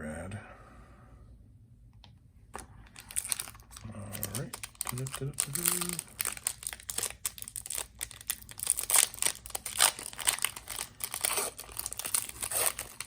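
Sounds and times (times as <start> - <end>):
card pack wrapper crinkling: 2.9 - 13.0.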